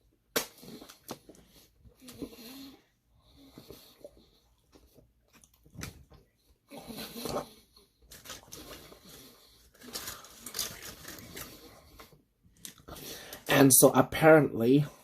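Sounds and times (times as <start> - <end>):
wet chewing sounds: 3.4 - 6.5.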